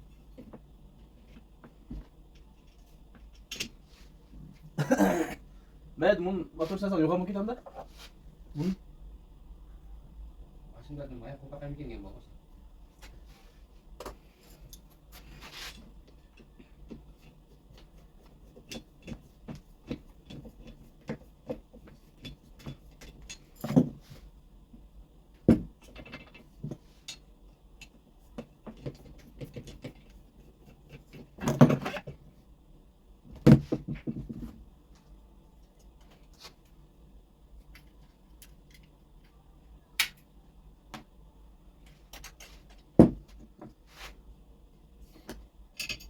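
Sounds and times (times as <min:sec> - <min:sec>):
tools clicking and clinking: 0:45.8 - 0:46.0.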